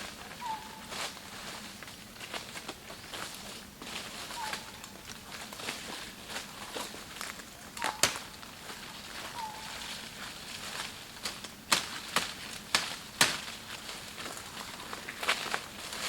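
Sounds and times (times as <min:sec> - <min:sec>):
sharp cracks: 0:07.8 - 0:08.4, 0:11.2 - 0:13.6.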